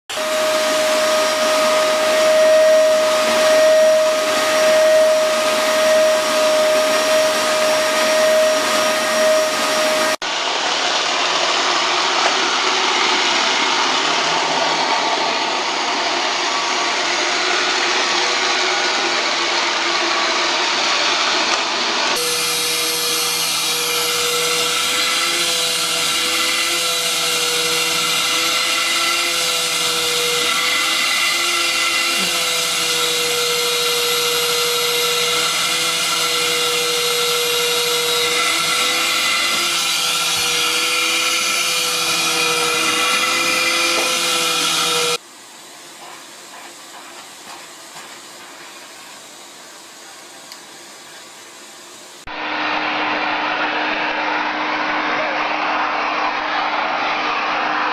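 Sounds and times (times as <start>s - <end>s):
vacuum cleaner rushing noise: 0.1s - 45.2s, 46.2s - 57.9s
vacuum cleaner motor whine: 0.1s - 57.9s.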